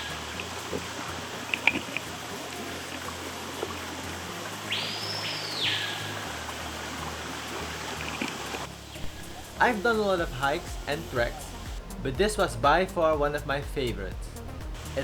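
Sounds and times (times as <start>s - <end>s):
stream water rushing: 0.0s - 11.8s
background music with bass line: 0.0s - 15.0s.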